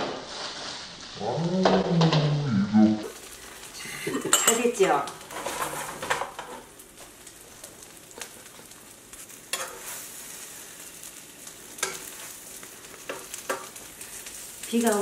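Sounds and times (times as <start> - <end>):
pancake sizzling in a frying pan: 0.0 - 2.3, 3.0 - 15.0
spatula scraping a pan: 5.2 - 6.6, 8.2 - 14.6.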